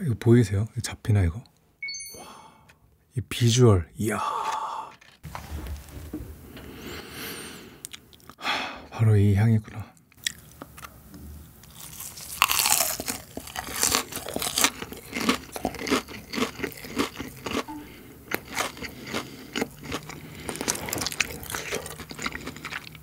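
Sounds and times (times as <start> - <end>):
crunchy chewing: 10.1 - 10.9, 11.6 - 23.0
biting crisp fried chicken: 11.6 - 23.0.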